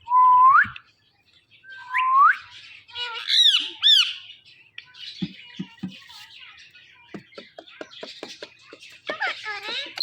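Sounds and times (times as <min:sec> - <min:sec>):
parrot squawking: 0:02.9 - 0:04.3, 0:07.7 - 0:10.0
parrot chattering calls: 0:07.4 - 0:10.0.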